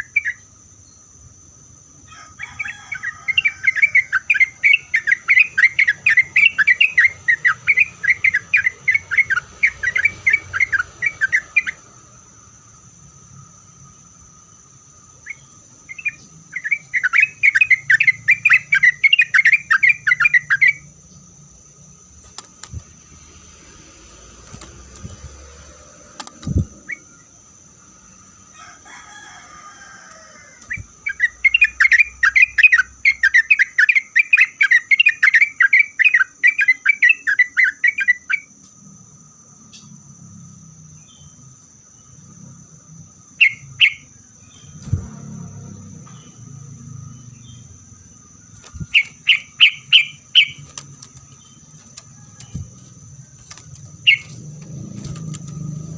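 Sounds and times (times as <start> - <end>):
bird chattering song: 0.0 - 1.0, 2.5 - 11.8, 15.2 - 21.3, 30.7 - 38.6, 43.3 - 45.1, 46.0 - 55.9
steady high-pitched whine: 0.0 - 55.9.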